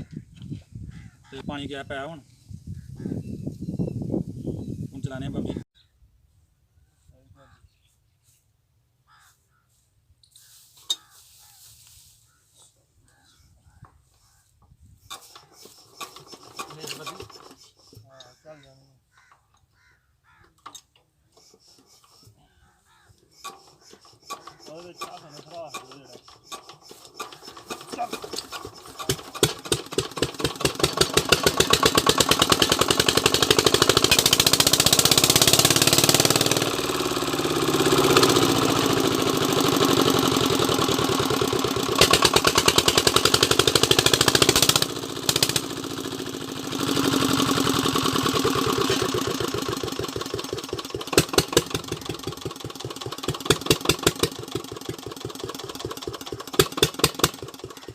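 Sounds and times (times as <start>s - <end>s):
diesel engine rapid firing: 15.1s - 17.8s, 23.4s - 57.9s.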